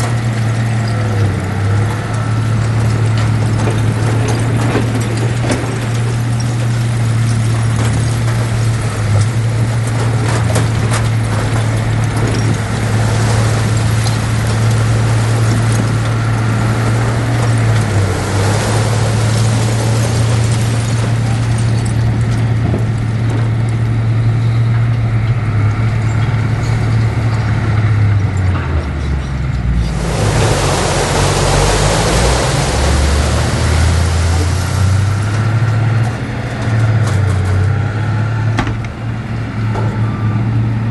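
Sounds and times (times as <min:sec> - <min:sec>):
heavy diesel engine under load: 0:00.0 - 0:40.9
loud rushing noise: 0:29.8 - 0:36.5.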